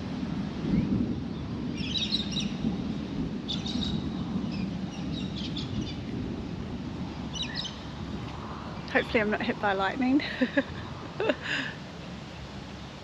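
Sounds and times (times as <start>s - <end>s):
wind rumble on microphone: 0.0s - 13.0s
birds chirping: 0.8s - 2.8s, 3.5s - 6.1s, 7.1s - 8.1s.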